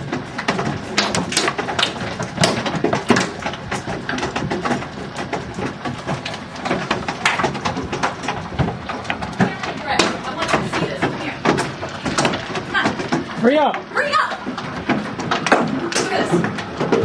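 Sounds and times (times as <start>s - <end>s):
hailstones striking hard surfaces: 0.0s - 17.0s.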